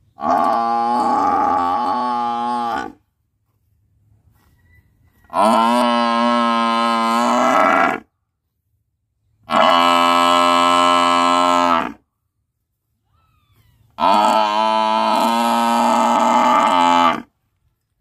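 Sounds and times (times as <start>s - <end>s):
buffalo mooing: 0.2s - 3.0s, 5.3s - 8.1s, 9.5s - 12.0s, 14.0s - 17.3s.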